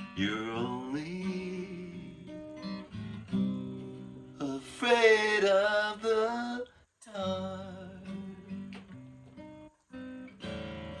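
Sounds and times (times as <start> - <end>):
acoustic guitar strumming chords: 0.0 - 11.0
person singing: 0.1 - 2.3, 3.4 - 8.8.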